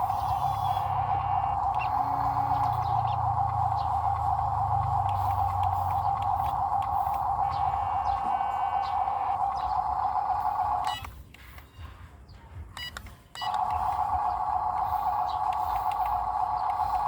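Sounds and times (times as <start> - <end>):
loud steady buzz: 0.0 - 11.3, 13.4 - 17.0
short beeps: 12.8 - 14.0.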